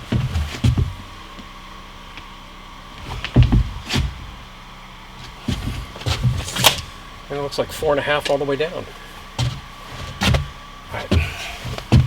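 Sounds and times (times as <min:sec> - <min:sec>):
boards thumping and knocking: 0:00.0 - 0:01.1, 0:03.0 - 0:04.4, 0:05.2 - 0:06.8, 0:09.4 - 0:12.0.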